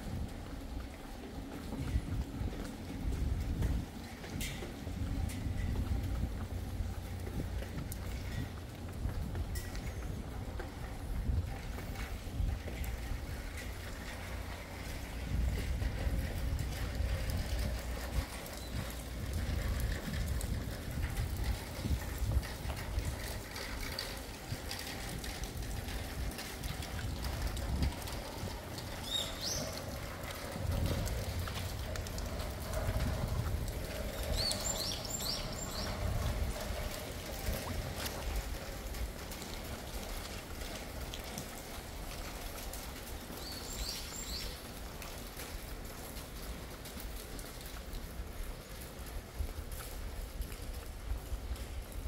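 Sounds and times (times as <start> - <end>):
heavy rain falling: 0.0 - 52.0
water trickling: 0.0 - 52.0
low rumble: 4.8 - 39.2.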